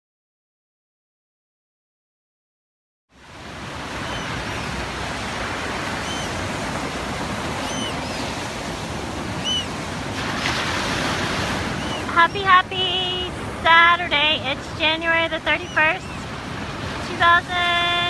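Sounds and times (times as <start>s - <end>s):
ocean surf washing onto beach: 3.1s - 18.0s
shorebirds chirping: 3.5s - 18.0s.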